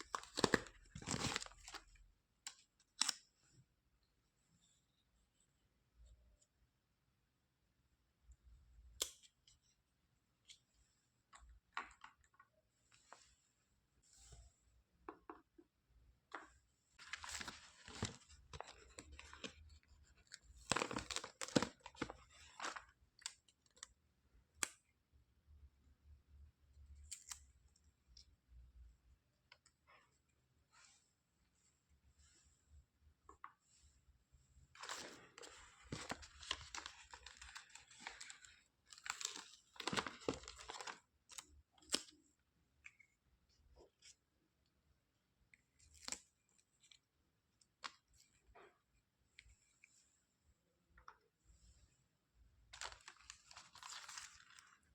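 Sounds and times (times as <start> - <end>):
packaging tearing and crinkling: 0.1 - 1.8
packaging crinkling and tearing: 0.1 - 1.9, 17.0 - 23.8, 34.8 - 42.0, 52.8 - 54.9.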